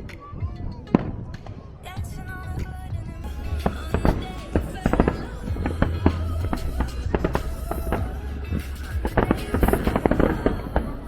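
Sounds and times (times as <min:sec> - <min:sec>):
fireworks bursting: 0:00.0 - 0:11.0
show music with bass: 0:03.2 - 0:11.0.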